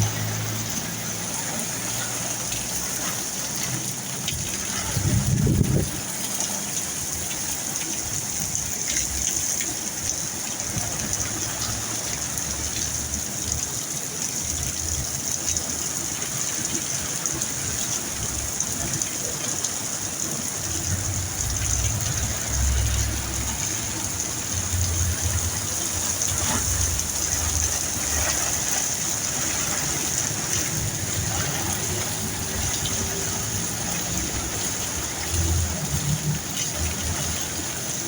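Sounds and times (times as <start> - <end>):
heavy rain falling: 0.0 - 38.0.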